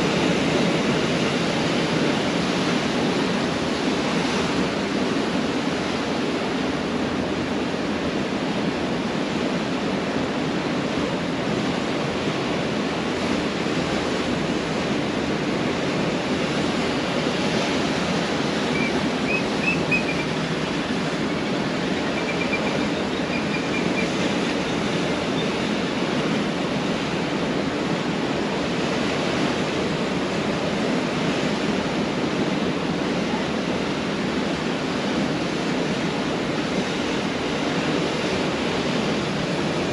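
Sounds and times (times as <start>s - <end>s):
surf washing onto beach: 0.0s - 39.9s.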